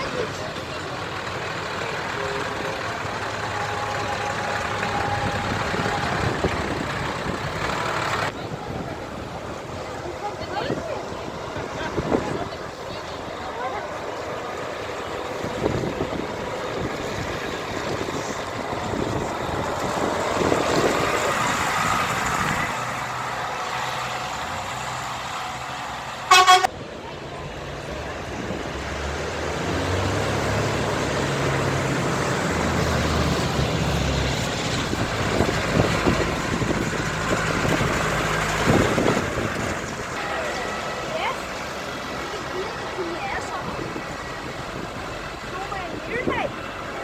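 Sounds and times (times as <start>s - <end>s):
heavy engine drone: 0.0s - 47.0s
trucks and tractors passing: 0.0s - 47.0s
loud horn toot: 26.3s - 26.7s.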